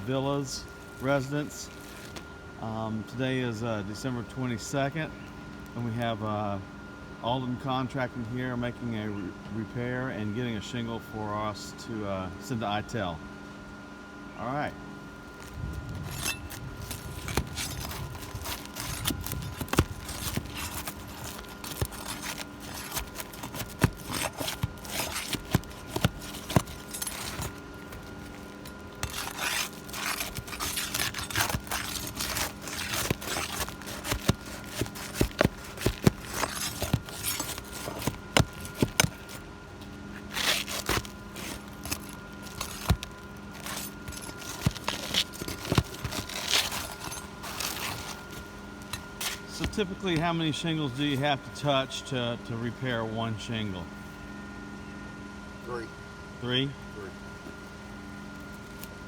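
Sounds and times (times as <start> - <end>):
shingles scraping and crinkling: 0.0 - 2.3, 15.2 - 52.1.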